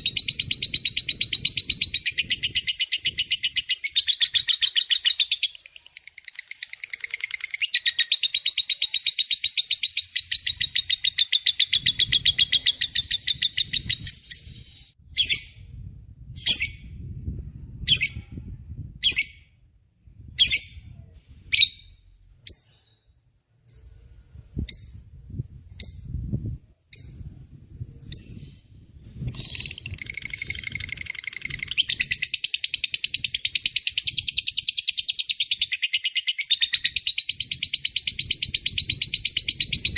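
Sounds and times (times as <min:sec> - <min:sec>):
lovebird chattering chirps: 0:00.1 - 0:15.4, 0:28.0 - 0:39.9.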